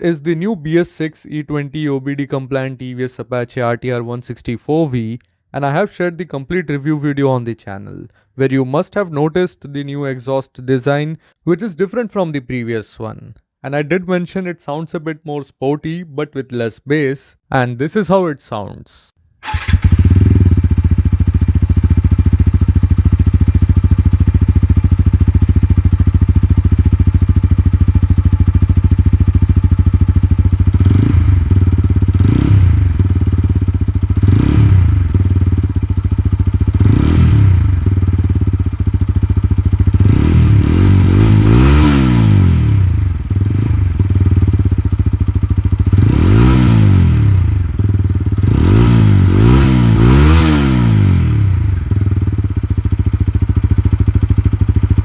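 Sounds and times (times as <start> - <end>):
motorcycle engine idling and revving: 19.4 - 55.0.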